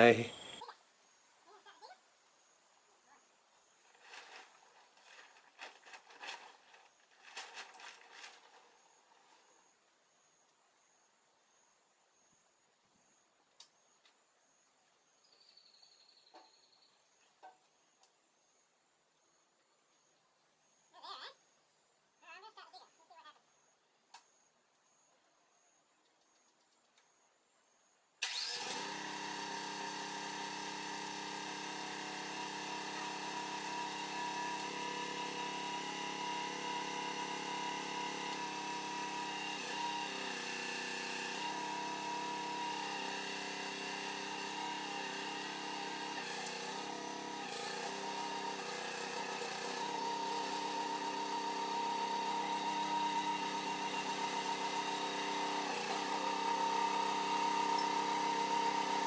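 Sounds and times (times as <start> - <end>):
machine engine running: 28.4 - 59.0.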